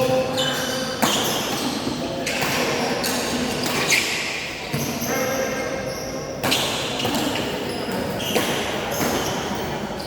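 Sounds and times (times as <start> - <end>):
racket hitting shuttlecock: 0.0 - 4.9, 6.4 - 9.5.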